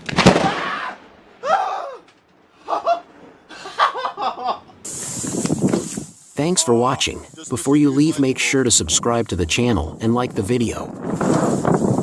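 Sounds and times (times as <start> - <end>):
person laughing: 2.6 - 4.7
steady hiss: 4.8 - 9.3.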